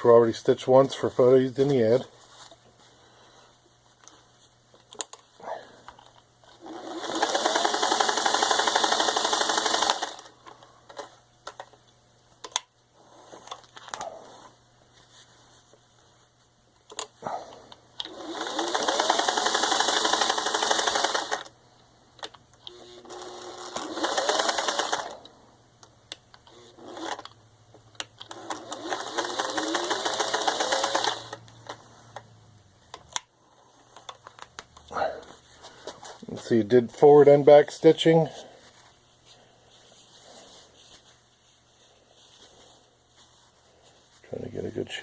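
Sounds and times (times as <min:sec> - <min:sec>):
sewing machine stitching: 0:06.6 - 0:10.3, 0:18.0 - 0:21.5, 0:22.7 - 0:25.2, 0:26.5 - 0:27.3, 0:28.2 - 0:31.4.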